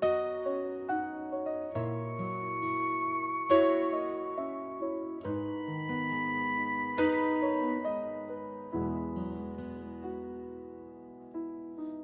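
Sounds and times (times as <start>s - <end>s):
piano melody with sustained chords: 0.0s - 12.0s.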